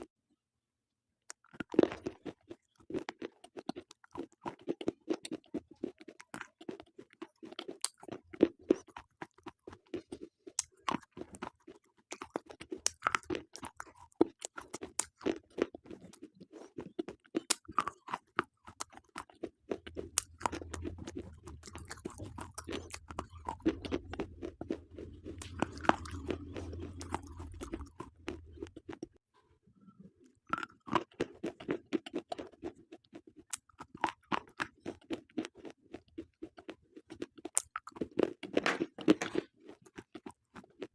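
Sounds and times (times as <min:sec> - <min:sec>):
crunching of chewed slate pencils: 0:01.3 - 0:29.2, 0:30.2 - 0:40.9
steady low hum: 0:20.1 - 0:28.8.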